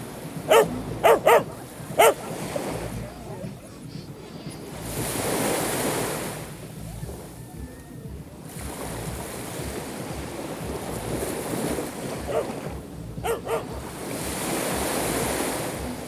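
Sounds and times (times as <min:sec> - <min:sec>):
sea waves washing on shore: 0:00.0 - 0:16.0
dog barking: 0:00.4 - 0:03.6, 0:11.8 - 0:14.5.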